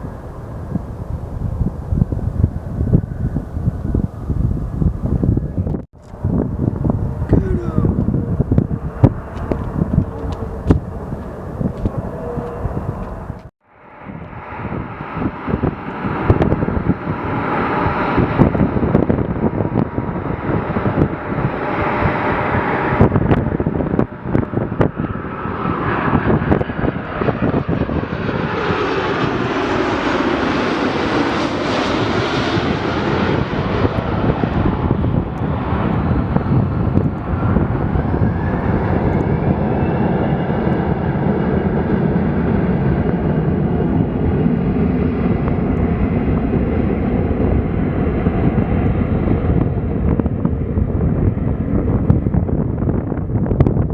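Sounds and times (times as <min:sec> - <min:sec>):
jet engines rushing: 0:00.0 - 0:53.9
engine whine rising in pitch: 0:08.1 - 0:15.7.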